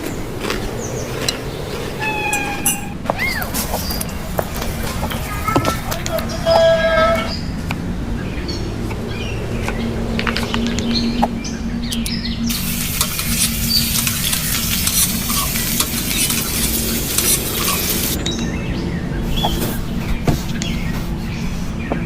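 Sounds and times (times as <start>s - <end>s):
utensil clinking and scraping: 1.2s - 6.2s, 12.5s - 18.3s
food frying in a pan: 12.5s - 18.2s
loud sizzle: 12.5s - 18.2s.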